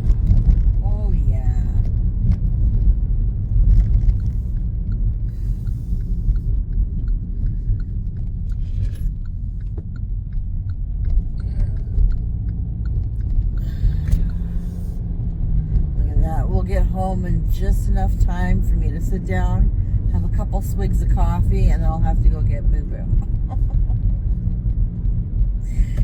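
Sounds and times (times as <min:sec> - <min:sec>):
engine and tyre rumble: 0:00.0 - 0:26.0
faint light ticking: 0:03.7 - 0:15.4.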